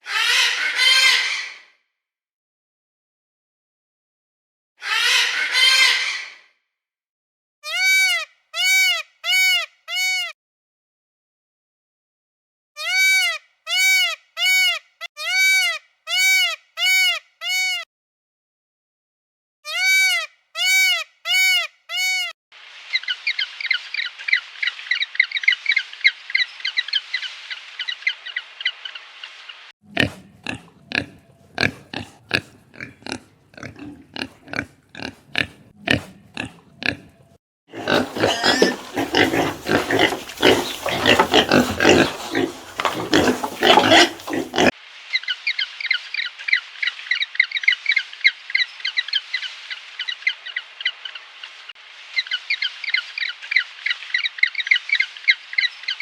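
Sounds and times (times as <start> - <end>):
rough animal grunting: 29.8 - 44.7
animal honking calls: 37.7 - 44.7
high-pitched animal chattering: 37.7 - 44.7.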